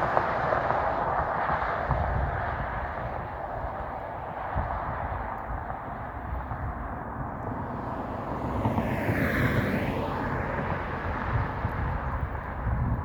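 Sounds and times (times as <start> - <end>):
vehicle passing by: 7.4 - 13.0.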